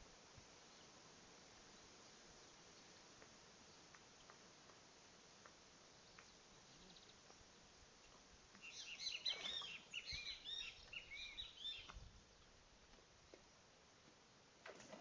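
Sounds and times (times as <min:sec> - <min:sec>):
bird chirping: 0:05.9 - 0:12.5.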